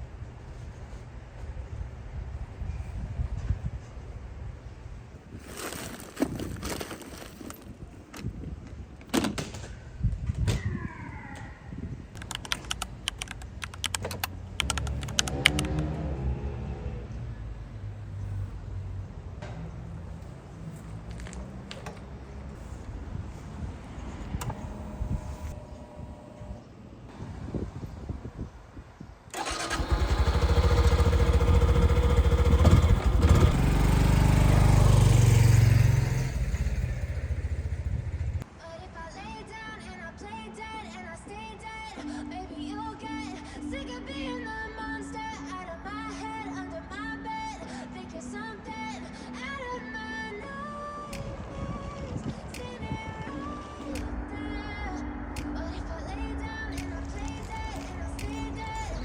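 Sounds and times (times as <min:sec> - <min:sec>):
sharp clicks and knocks: 0:12.2 - 0:15.9
small motorcycle engine running: 0:29.4 - 0:38.4.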